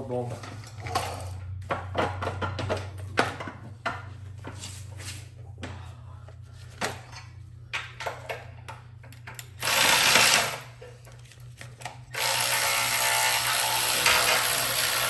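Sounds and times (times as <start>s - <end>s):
steady low hum: 0.0s - 9.7s
hand tools clicking and knocking: 13.0s - 15.0s.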